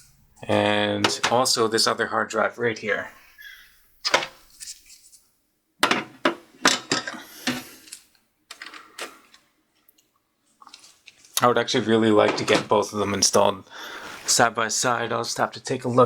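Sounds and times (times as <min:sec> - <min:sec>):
clacks of metal and hard plastic: 0:05.8 - 0:07.7.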